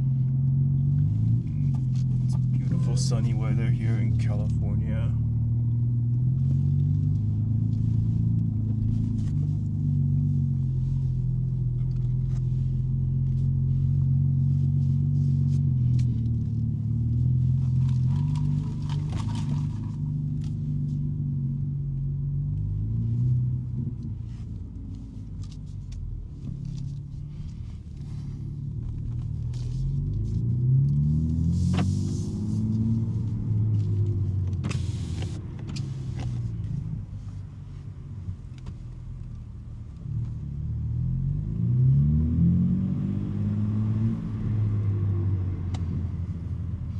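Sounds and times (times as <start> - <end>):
car engine and exhaust driving: 0.0 - 46.9.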